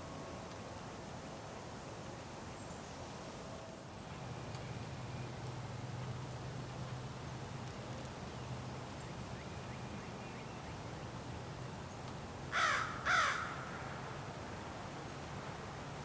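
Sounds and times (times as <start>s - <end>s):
crow cawing: 12.5s - 13.9s.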